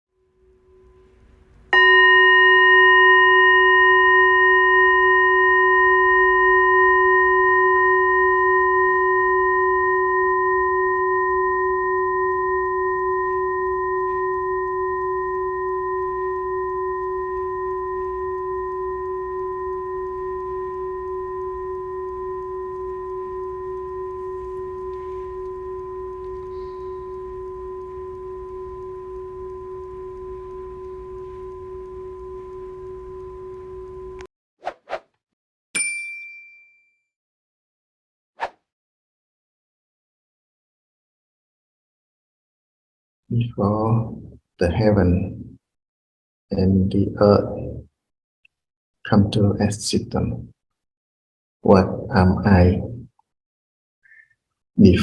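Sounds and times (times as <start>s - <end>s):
singing bowl struck and ringing: 0.2s - 34.3s, 35.8s - 37.0s.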